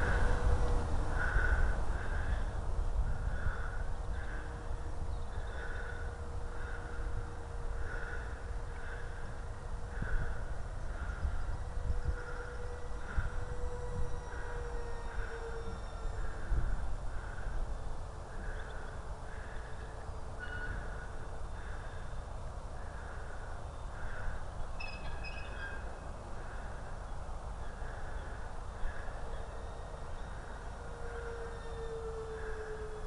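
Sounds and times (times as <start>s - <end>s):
wind rumble on microphone: 0.0s - 33.0s
drone motors whining: 10.9s - 17.6s
bird chirps: 24.8s - 26.0s.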